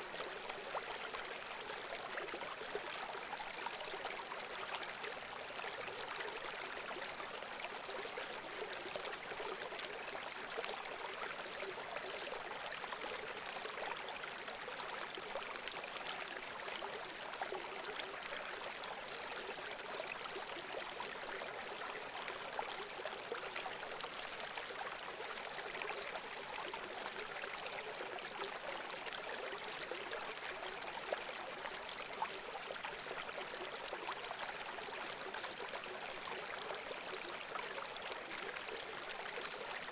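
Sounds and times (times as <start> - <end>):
stream babbling: 14.4 - 39.9.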